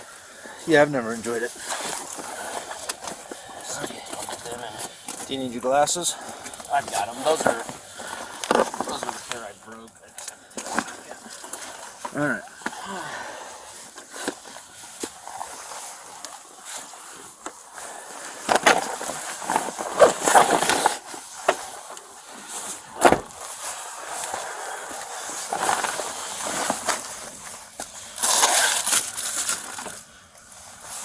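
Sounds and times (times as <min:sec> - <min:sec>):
rustling and scraping of items: 0:00.0 - 0:31.0.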